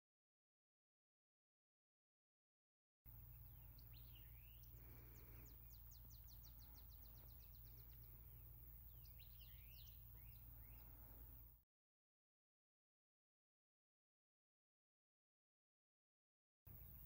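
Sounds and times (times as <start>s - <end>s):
birds chirping: 3.1s - 11.6s, 16.7s - 17.0s
low steady hum: 3.1s - 11.6s, 16.7s - 17.0s.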